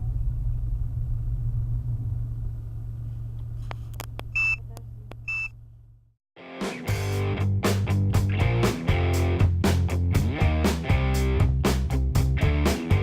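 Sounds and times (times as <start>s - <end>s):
car interior drone: 0.0s - 6.2s
short high electronic beeps: 4.4s - 5.5s
music: 6.4s - 13.0s.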